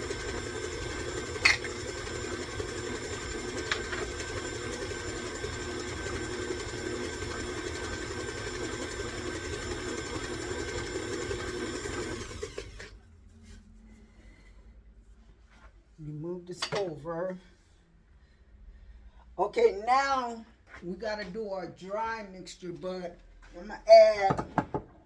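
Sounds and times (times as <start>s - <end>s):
electric stand mixer running: 0.0s - 13.0s.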